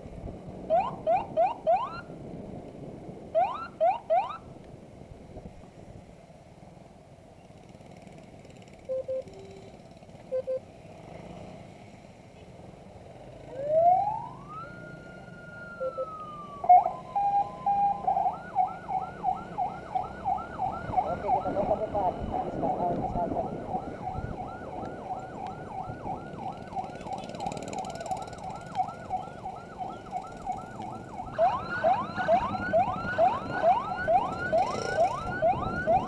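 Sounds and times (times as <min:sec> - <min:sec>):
motorcycle siren chirping and wailing: 0:00.6 - 0:02.2, 0:03.3 - 0:04.5, 0:08.8 - 0:10.7, 0:13.4 - 0:36.0.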